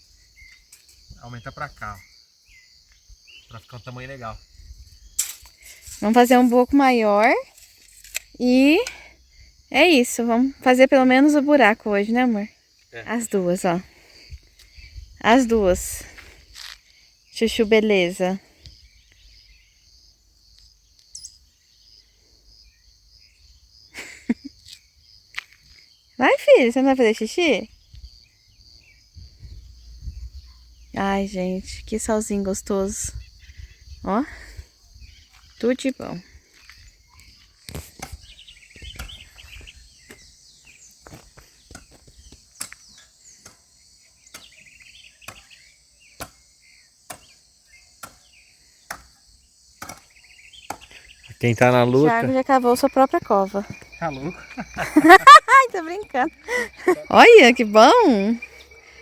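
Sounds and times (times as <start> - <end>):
insects chirping: 0.0 - 59.0
high bird chirp: 0.2 - 8.8, 21.1 - 22.1, 36.8 - 49.0, 49.8 - 59.0
digging tool chopping into soil: 37.7 - 39.3, 41.6 - 43.7, 44.3 - 44.6, 45.2 - 45.6, 46.2 - 46.5, 47.1 - 47.4, 48.0 - 48.3, 48.9 - 49.2, 49.8 - 50.9.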